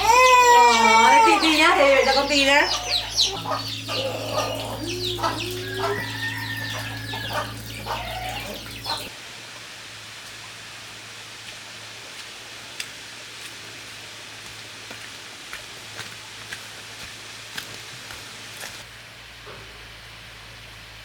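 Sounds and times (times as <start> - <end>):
chickens clucking: 0.0 - 9.1
steady low hum: 1.1 - 9.1.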